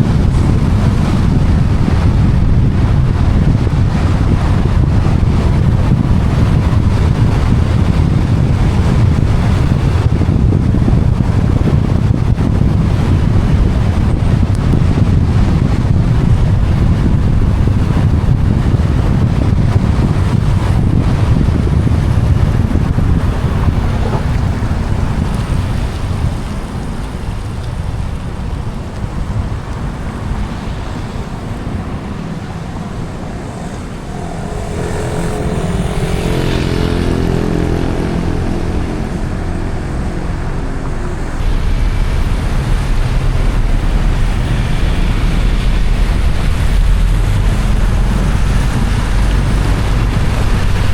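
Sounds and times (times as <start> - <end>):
road and wind rumble: 0.0 - 50.9
car engine note: 31.6 - 50.9.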